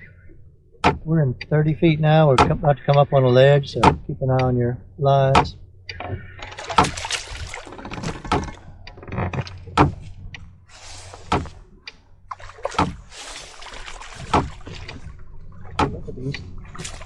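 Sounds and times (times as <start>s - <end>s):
low motor hum: 0.0s - 17.0s
water slapping against boat hull: 0.7s - 4.6s, 5.3s - 17.0s
sharp knocks: 0.8s - 1.1s, 3.8s - 4.2s, 5.4s - 10.1s, 11.2s - 11.6s, 12.6s - 13.1s, 14.1s - 15.1s, 15.7s - 16.9s.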